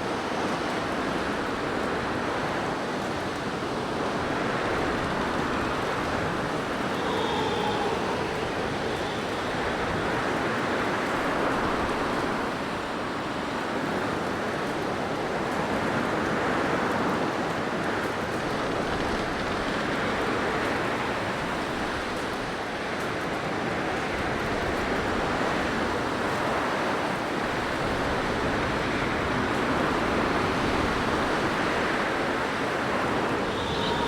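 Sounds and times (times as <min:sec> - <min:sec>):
blizzard wind gusting: 0:00.4 - 0:14.7, 0:24.3 - 0:34.0.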